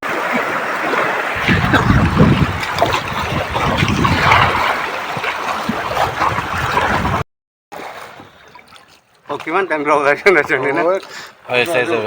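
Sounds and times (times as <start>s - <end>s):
river water rushing: 0.1s - 6.9s
low rumble: 1.4s - 5.0s.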